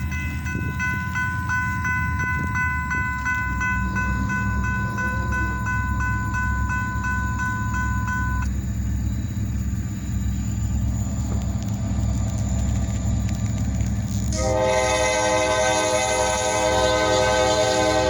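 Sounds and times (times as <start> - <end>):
railroad warning bell ringing: 0.0 - 10.4, 14.3 - 18.0
diesel locomotive rumble: 0.0 - 18.0.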